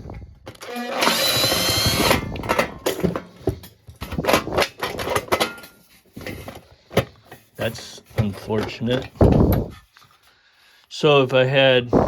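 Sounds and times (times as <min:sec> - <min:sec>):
metal clanks and clicks: 0:02.1 - 0:09.4.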